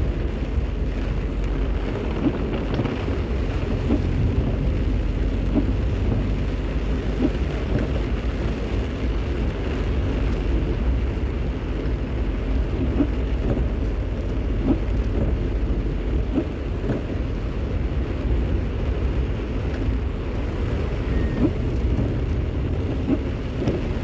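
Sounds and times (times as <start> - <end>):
rain hiss: 0.0 - 24.0
vehicle driving on wet road: 0.0 - 24.0.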